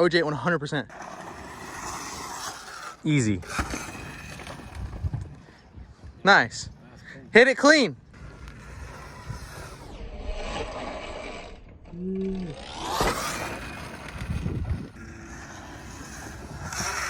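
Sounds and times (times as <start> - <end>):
tyre noise on dirt: 0.9 - 6.1, 8.2 - 17.0
electric motor whine: 8.2 - 17.0.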